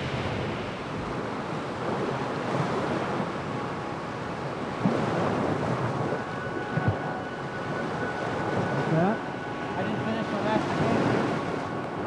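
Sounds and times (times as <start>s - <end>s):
waves washing onto beach: 0.0s - 12.0s.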